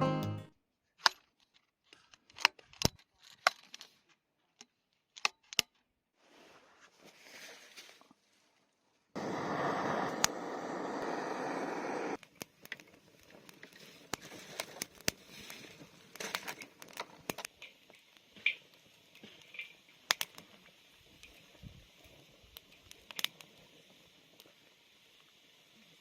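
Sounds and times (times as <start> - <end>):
steady hiss: 9.2 - 12.2, 13.1 - 26.0
campfire crackling and popping: 9.2 - 26.0.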